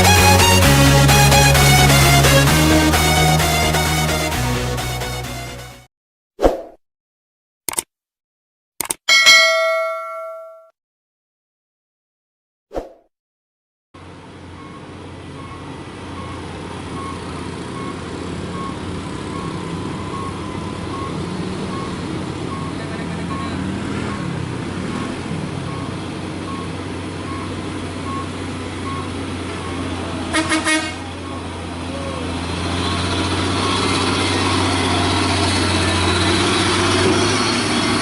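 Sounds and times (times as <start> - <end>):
road noise: 0.0 - 5.7, 14.0 - 38.0
truck diesel engine droning: 0.0 - 5.8, 14.0 - 38.0
short click: 7.7 - 7.9
faint repeating beep: 20.1 - 24.3, 27.3 - 29.9.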